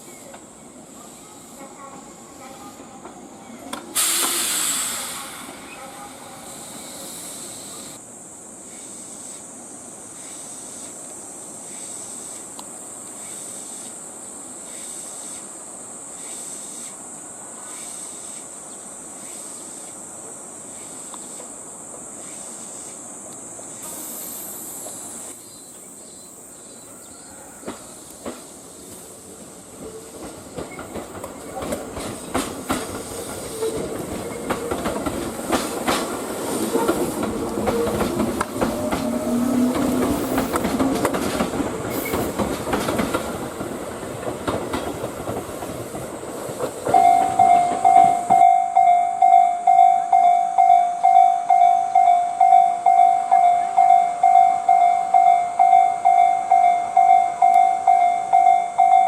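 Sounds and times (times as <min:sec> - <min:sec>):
train wheels clattering over rail joints: 0:27.6 - 0:48.4
level-crossing warning bell ringing: 0:46.9 - 0:59.0.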